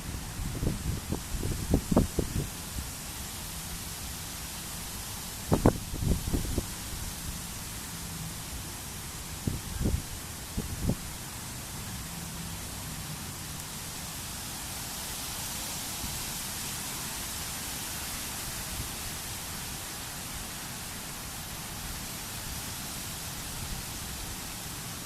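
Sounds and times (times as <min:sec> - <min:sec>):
outdoor hiss: 0:00.0 - 0:25.0.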